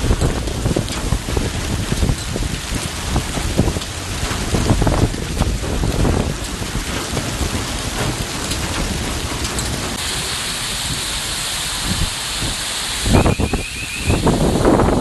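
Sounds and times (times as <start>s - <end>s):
low rumble of thunder: 0.0s - 10.2s
heavy rain pouring: 0.0s - 15.0s.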